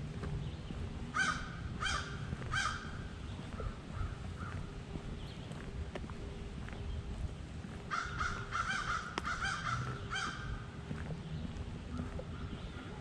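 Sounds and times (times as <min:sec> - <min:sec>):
bird calling: 0:00.5 - 0:05.5, 0:07.9 - 0:13.0.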